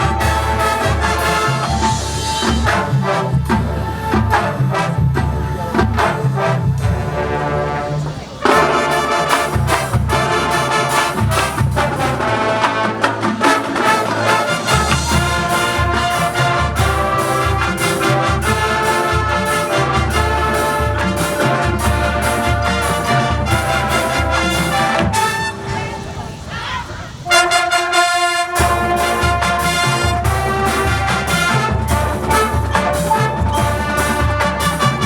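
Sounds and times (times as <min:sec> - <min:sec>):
brass section holding chords: 0:00.0 - 0:26.5, 0:27.1 - 0:35.0
percussion hits: 0:00.0 - 0:35.0.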